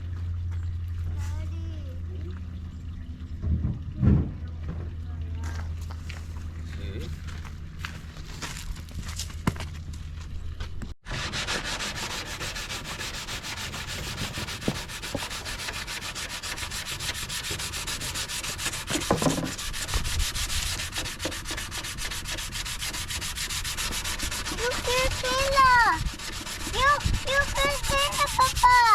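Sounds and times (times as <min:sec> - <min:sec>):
sanding plastic scraping: 0:11.1 - 0:28.9.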